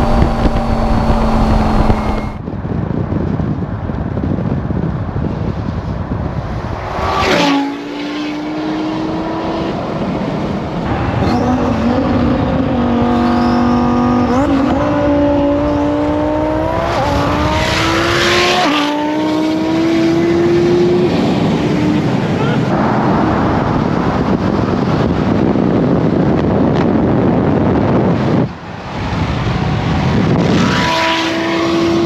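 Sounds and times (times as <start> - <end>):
car engine accelerating: 0.0 - 2.4.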